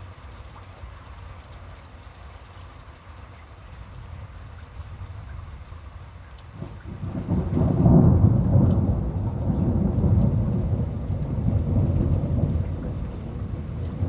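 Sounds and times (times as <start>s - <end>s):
rain pattering: 0.0s - 14.0s
thunder rumbling: 6.5s - 14.0s.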